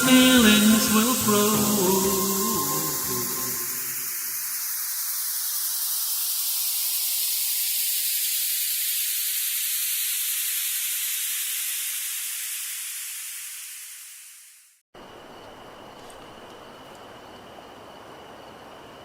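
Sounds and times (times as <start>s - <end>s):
rushing hiss with falling sweeps: 0.0s - 14.8s.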